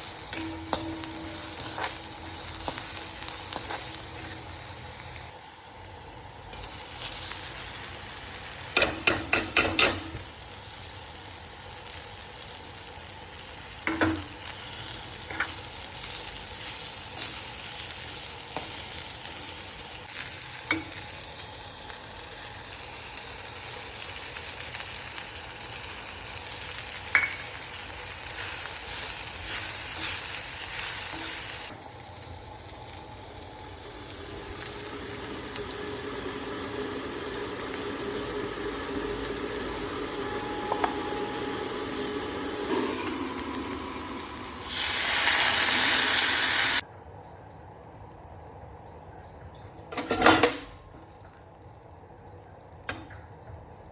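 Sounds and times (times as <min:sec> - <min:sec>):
spatula scraping a pan: 0:00.0 - 0:04.5
beans sizzling in hot oil: 0:00.0 - 0:46.8.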